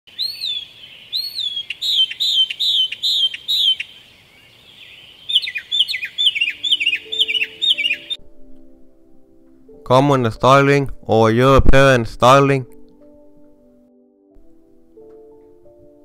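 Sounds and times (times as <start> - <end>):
starling chirping: 0.1 - 8.2.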